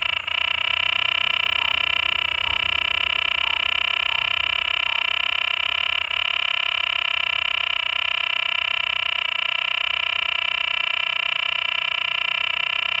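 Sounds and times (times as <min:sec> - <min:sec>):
frog buzzy call: 0:00.0 - 0:06.8.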